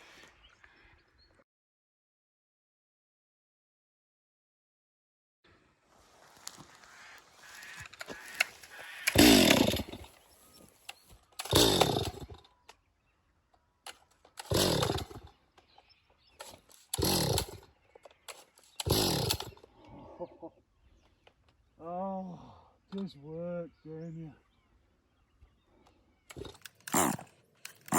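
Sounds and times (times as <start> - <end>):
chainsaw bursts: 7.4 - 12.5, 13.9 - 15.4, 16.4 - 19.6, 26.3 - 27.9.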